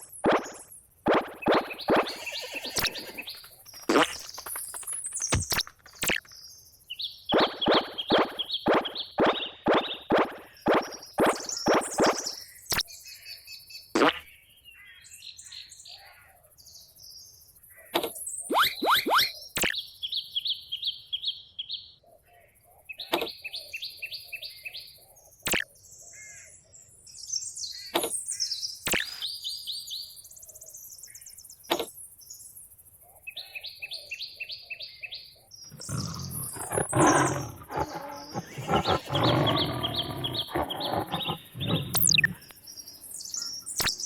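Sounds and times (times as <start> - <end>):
birds trilling: 1.6 - 4.5, 35.7 - 42.5
rough low growl: 35.7 - 42.5.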